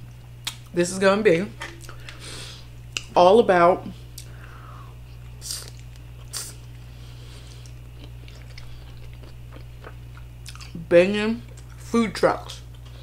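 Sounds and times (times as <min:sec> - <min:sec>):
steady low hum: 0:00.0 - 0:13.0
crisp bite sounds: 0:05.4 - 0:06.8.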